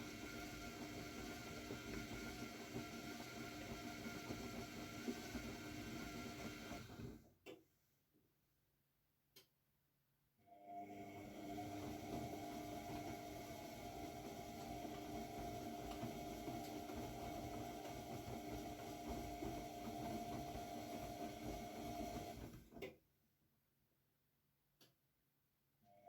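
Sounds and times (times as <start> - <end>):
washing machine running: 0.0 - 7.3, 10.7 - 22.9.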